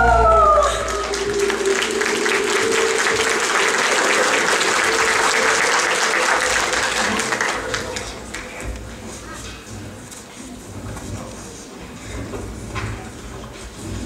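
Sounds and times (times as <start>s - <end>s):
audience clapping: 0.6s - 9.5s.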